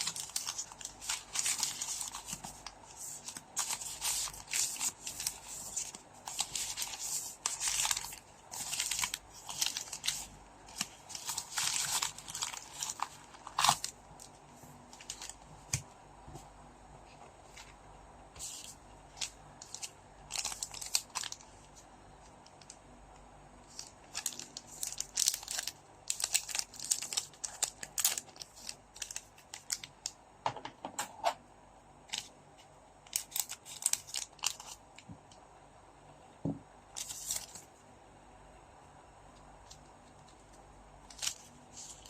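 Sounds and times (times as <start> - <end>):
card wrappers crinkling and tearing: 0.0 - 15.8, 18.4 - 21.8, 23.7 - 30.1, 33.1 - 34.8, 37.0 - 37.7, 39.7 - 42.0.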